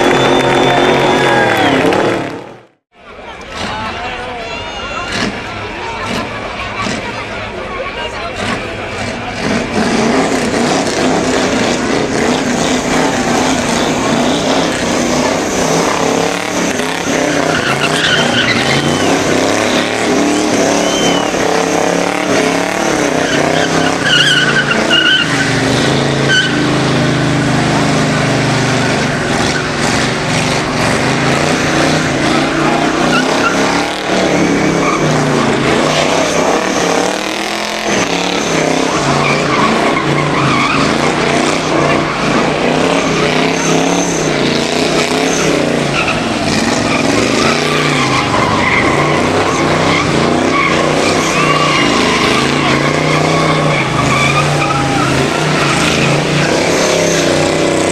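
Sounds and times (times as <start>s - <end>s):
tyres squealing: 3.5s - 57.9s
car engine at high revs: 5.0s - 57.9s.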